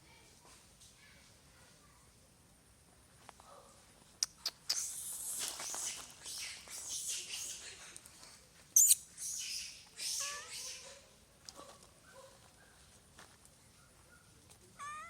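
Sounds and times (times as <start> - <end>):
baby monkey crying: 8.8 - 10.8, 14.8 - 15.0.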